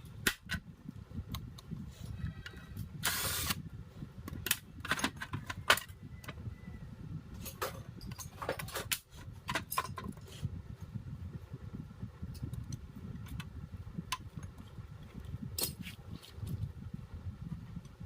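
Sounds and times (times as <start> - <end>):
steady low rumble: 0.0 - 18.0
tools and parts clicking: 7.4 - 10.2.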